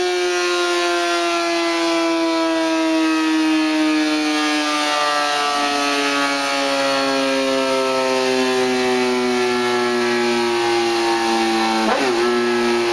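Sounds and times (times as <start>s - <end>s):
motorcycle engine revving high: 4.9s - 12.9s.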